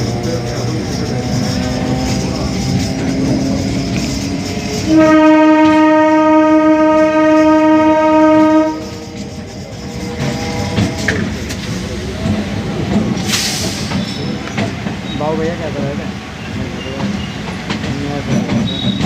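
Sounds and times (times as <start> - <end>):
train rumbling: 0.0 - 19.0
train horn blast: 4.7 - 9.2.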